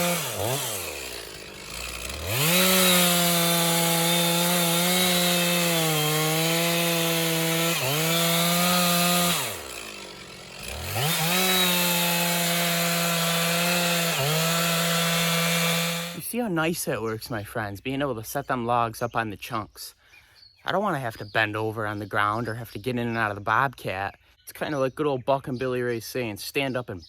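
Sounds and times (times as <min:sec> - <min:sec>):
chainsaw cutting through log: 0:00.0 - 0:16.3.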